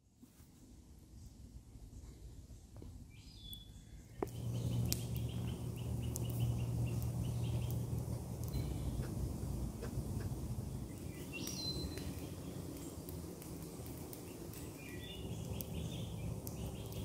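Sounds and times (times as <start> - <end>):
songbird chirps: 2.0 - 17.0
low rumble: 4.2 - 17.0.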